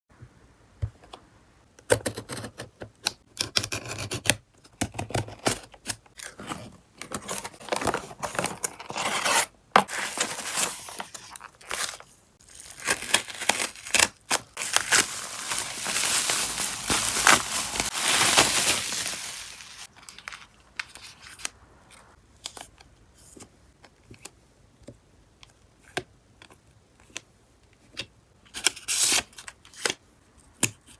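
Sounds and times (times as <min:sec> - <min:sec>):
packaging crinkling and tearing: 0:06.2 - 0:21.6.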